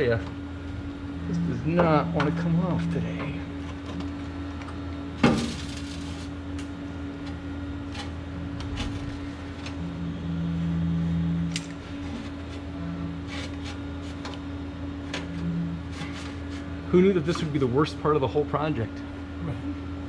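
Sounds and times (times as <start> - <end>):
low tone: 0.0 - 17.5
steady low hum: 0.0 - 20.0.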